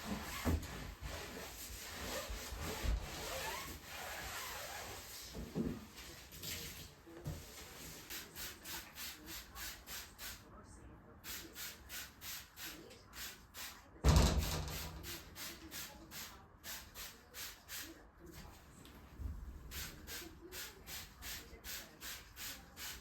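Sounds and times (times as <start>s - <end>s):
scrubbing bathtub surface: 0.0s - 9.4s.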